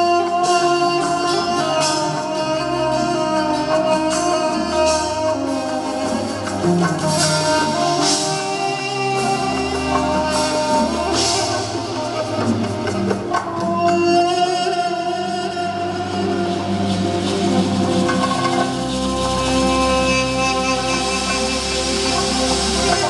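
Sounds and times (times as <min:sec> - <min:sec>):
live band music: 0:00.0 - 0:23.0.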